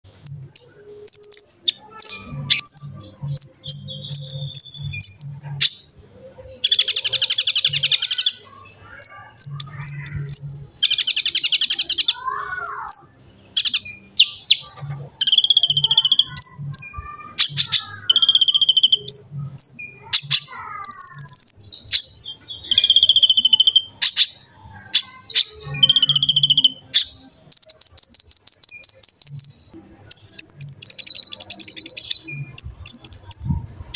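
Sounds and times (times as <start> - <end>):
sunbird chirping and twittering: 0.1 - 33.9.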